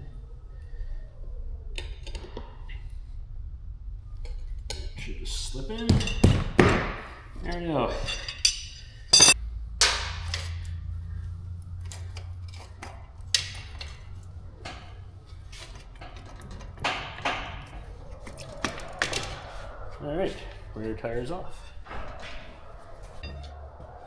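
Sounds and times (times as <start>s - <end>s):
low steady hum: 7.2s - 18.7s
metal tools clinking on wheel: 7.5s - 9.4s.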